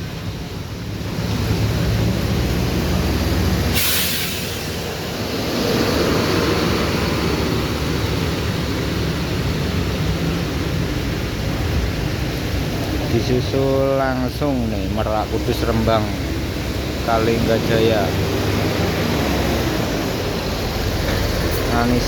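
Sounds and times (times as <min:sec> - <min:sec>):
bus diesel engine running: 0:00.0 - 0:22.0
air brake hiss: 0:03.7 - 0:04.8.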